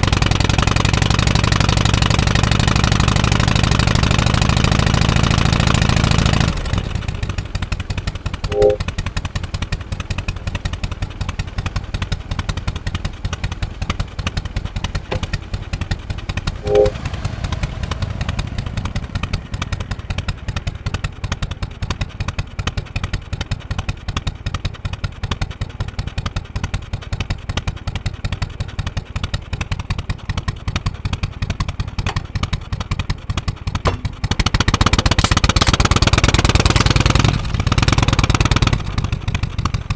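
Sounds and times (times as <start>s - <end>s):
motorcycle engine idling: 0.0s - 39.9s
short pitched beeps: 8.5s - 8.8s, 16.6s - 17.1s.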